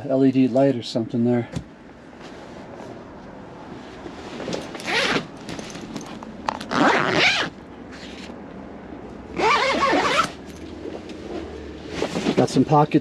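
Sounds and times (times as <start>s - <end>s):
tent zipper being pulled: 4.8s - 5.3s, 6.6s - 8.2s, 9.4s - 10.4s.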